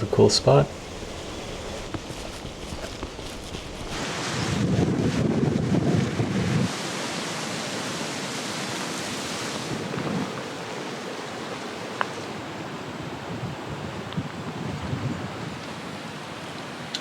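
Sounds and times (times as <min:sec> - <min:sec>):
wind buffeting microphone: 0:00.0 - 0:06.7, 0:09.6 - 0:10.5, 0:13.0 - 0:16.0
wind hiss: 0:00.0 - 0:17.0.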